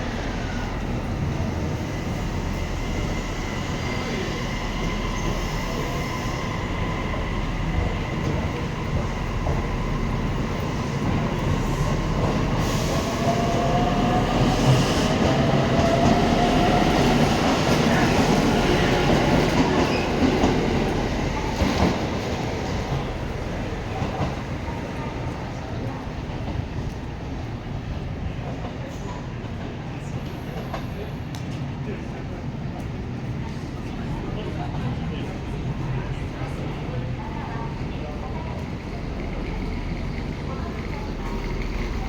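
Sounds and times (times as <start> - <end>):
wheels rumbling on rail: 0.0 - 42.0.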